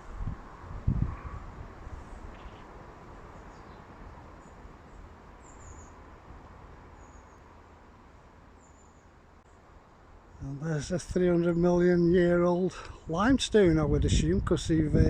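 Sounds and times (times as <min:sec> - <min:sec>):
wind rumble on microphone: 0:00.0 - 0:07.0, 0:10.4 - 0:15.0.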